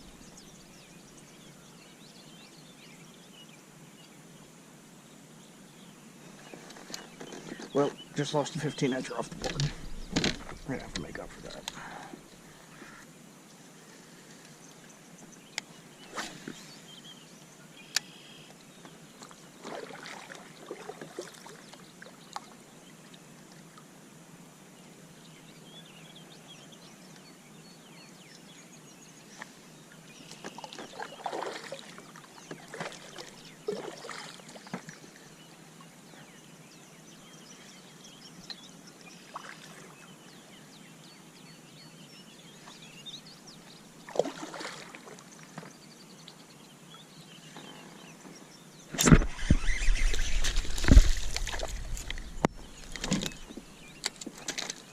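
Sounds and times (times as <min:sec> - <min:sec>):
faint steady hiss: 0:00.0 - 0:54.9
water lapping around kayak: 0:18.2 - 0:23.8, 0:30.1 - 0:35.4, 0:39.1 - 0:40.2, 0:43.8 - 0:46.0, 0:49.0 - 0:54.9
knocks and splashes against hull: 0:49.0 - 0:53.6.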